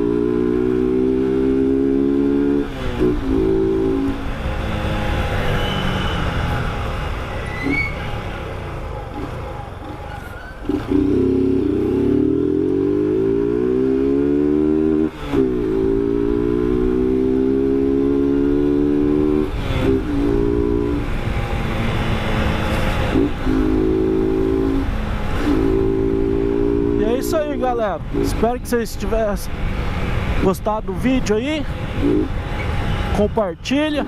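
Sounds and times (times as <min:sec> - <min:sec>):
motorcycle engine accelerating: 0:00.0 - 0:06.0, 0:10.6 - 0:28.4.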